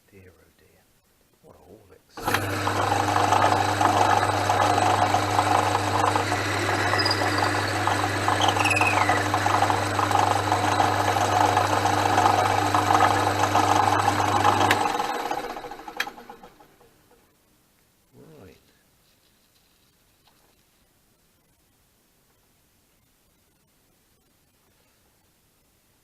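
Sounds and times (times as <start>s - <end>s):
rough chatter of lathe cut: 2.2s - 16.7s
lathe motor hum: 2.2s - 16.9s
falling squeal: 6.5s - 9.2s.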